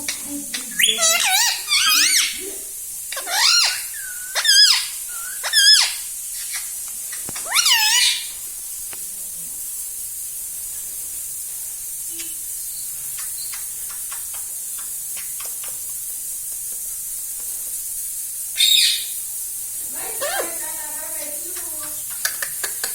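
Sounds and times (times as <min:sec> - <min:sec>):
steady high hiss: 0:00.0 - 0:22.9
faint clicks: 0:13.1 - 0:16.1, 0:21.5 - 0:22.9.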